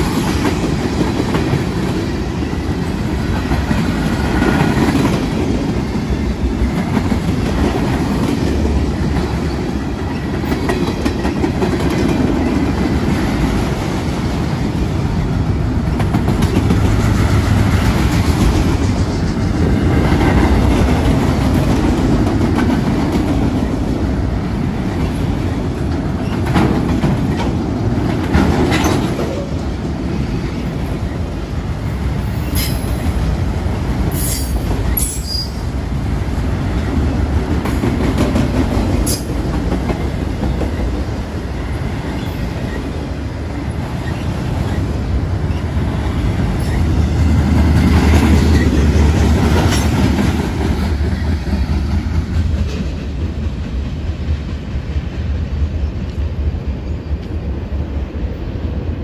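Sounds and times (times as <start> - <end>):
wheels clacking over rail joints: 0.0 - 30.1
freight train wheels rumbling: 0.0 - 59.0.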